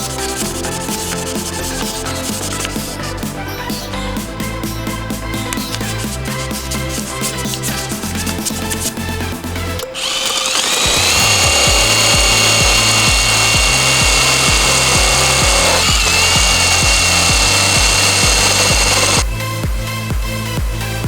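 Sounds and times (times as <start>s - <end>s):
background music with beat: 0.0s - 21.0s
electric drill whine: 9.8s - 19.2s.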